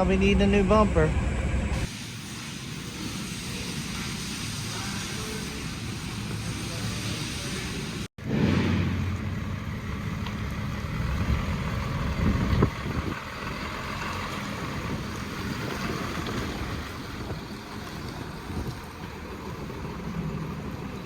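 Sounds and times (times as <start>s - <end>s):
wind buffeting microphone: 10.8s - 21.0s.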